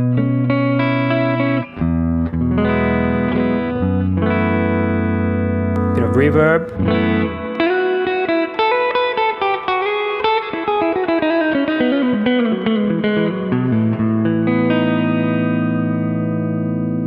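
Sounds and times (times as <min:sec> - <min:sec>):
electric guitar single notes: 0:05.8 - 0:08.1
electric guitar chord ringing: 0:05.8 - 0:08.4.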